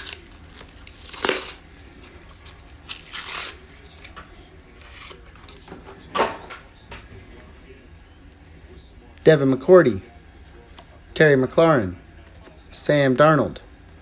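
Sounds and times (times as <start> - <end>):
card packs ripping open: 0.0 - 4.2.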